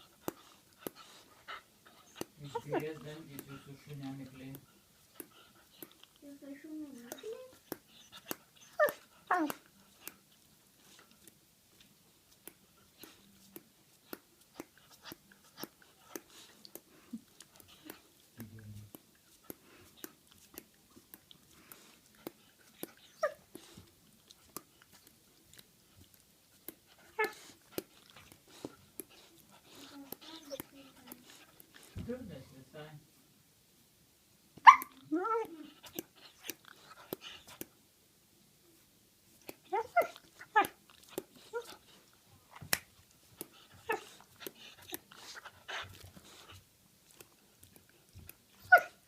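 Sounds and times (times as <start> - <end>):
dog's teeth clicking: 12.3 - 32.0.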